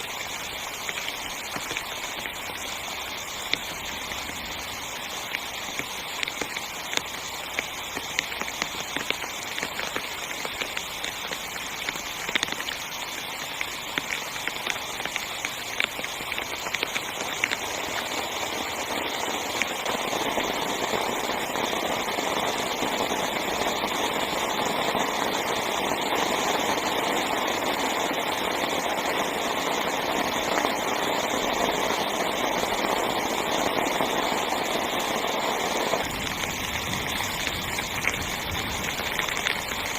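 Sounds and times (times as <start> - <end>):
heavy rain on tent fabric: 0.0 - 39.9.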